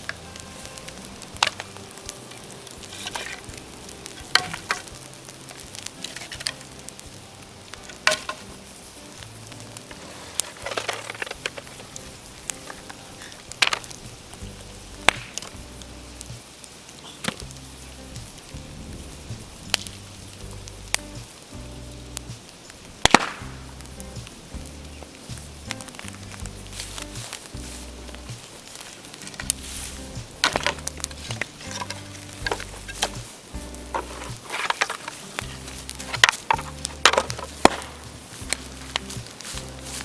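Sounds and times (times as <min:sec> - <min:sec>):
bamboo bonfire crackling: 0:00.0 - 0:40.0
bamboo popping: 0:00.0 - 0:40.0.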